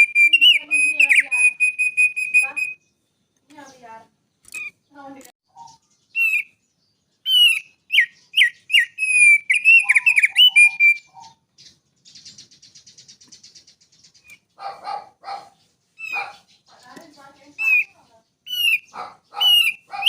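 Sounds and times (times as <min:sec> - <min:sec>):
songbird singing whistled notes: 0:00.0 - 0:20.0
bird rattling trill: 0:07.3 - 0:20.0.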